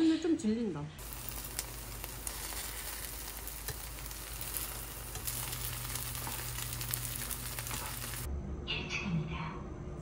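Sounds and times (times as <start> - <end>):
pancake sizzling in oil: 1.0 - 8.3
spatula scraping a pan: 1.1 - 8.3.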